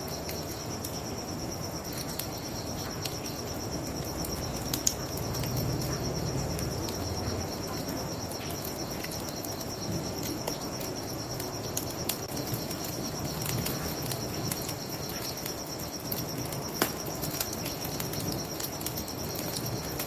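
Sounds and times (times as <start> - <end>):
crickets chirping: 0.0 - 20.0
bonfire crackling and popping: 1.8 - 20.0.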